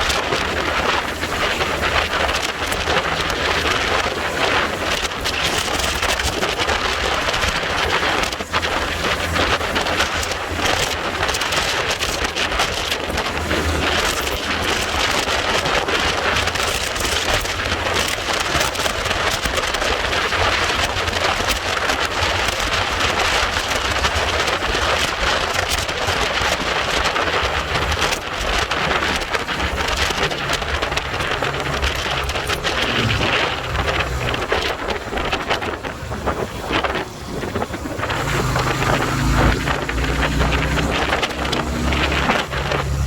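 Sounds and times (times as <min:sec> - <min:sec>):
wind rushing over microphone: 0:00.0 - 0:43.0
low rumble: 0:27.4 - 0:43.0.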